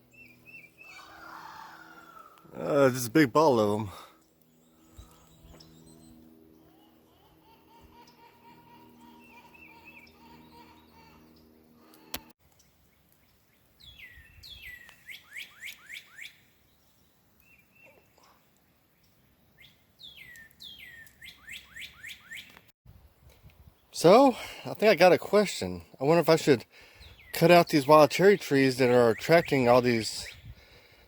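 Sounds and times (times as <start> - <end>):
songbird whistling: 13.8 - 16.4, 19.6 - 22.5.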